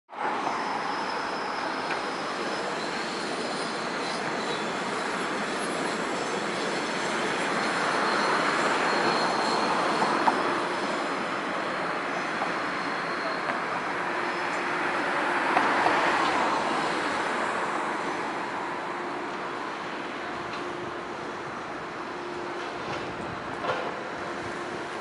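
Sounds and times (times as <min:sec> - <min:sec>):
rail traffic rumble: 0:00.1 - 0:25.0
high wheel squeal: 0:00.2 - 0:18.4.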